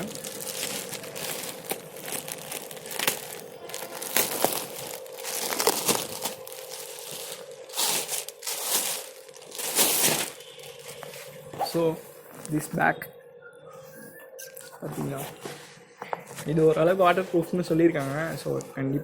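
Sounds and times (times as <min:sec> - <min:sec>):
bag crinkling and rustling: 0:00.0 - 0:12.7.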